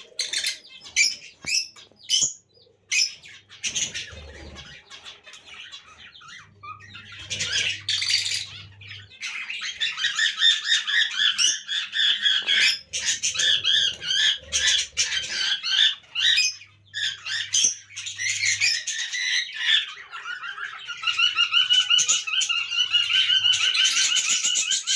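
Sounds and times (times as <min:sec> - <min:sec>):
lovebirds chirping and squawking: 0:00.0 - 0:24.9.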